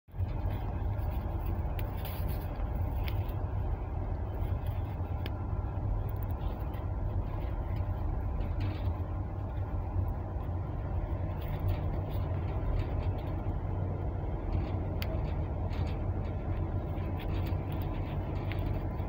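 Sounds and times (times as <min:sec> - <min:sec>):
train rumbling: 0:00.1 - 0:19.0.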